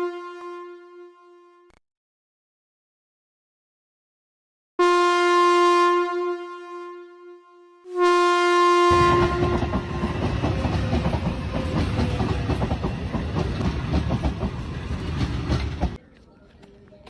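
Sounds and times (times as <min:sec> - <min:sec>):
train horn: 0:00.0 - 0:01.8, 0:04.8 - 0:11.0
train wheels clattering on rails: 0:09.2 - 0:16.0.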